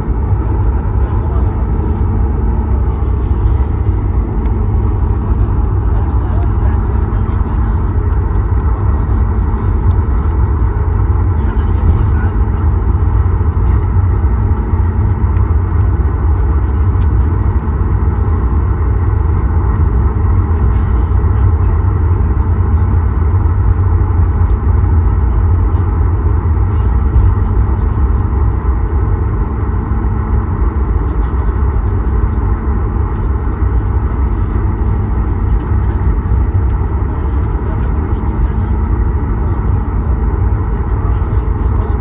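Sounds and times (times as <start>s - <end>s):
airplane engine rumble in cabin: 0.0s - 42.0s.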